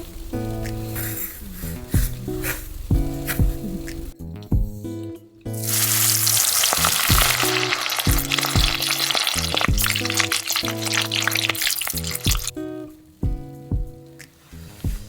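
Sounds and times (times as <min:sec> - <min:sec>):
background music with a beat: 0:00.0 - 0:15.0
food sizzling in frying: 0:05.5 - 0:12.6.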